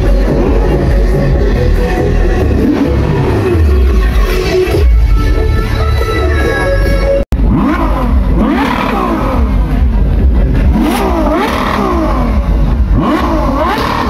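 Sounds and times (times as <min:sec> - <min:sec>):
sports car engine revving: 0:07.3 - 0:14.0.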